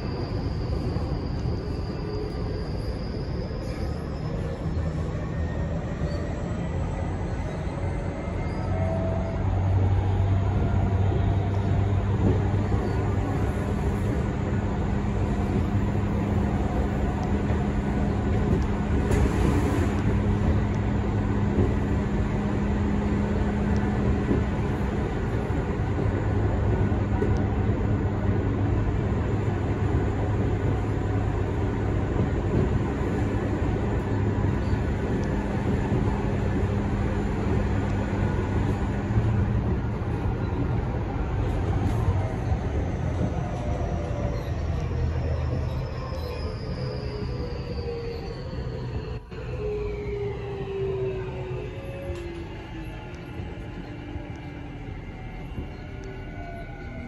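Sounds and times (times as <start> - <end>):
train rush: 0.0 - 57.0
wheels rumbling on rail: 0.0 - 57.0.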